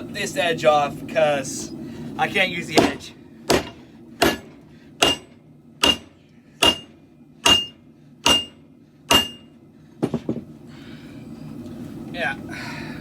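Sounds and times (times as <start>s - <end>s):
hammer striking steel blade on anvil: 2.8s - 9.5s.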